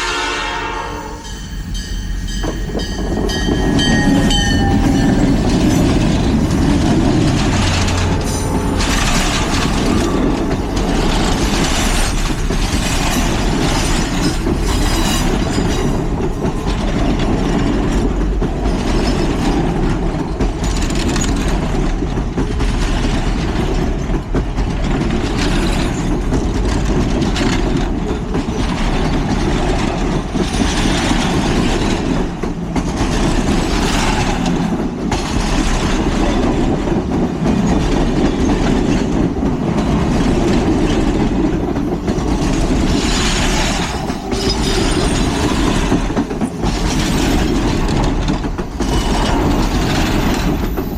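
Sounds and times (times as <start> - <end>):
wheels squealing on rail: 0.0 - 17.9, 37.5 - 50.9
train wheels clacking over rail joints: 0.1 - 50.9.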